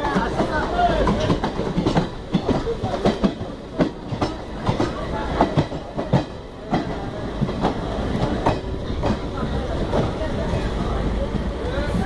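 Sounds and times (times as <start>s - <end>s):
train wheels rumbling on rails: 0.0s - 12.0s
wheels clacking over rail joints: 0.0s - 12.0s.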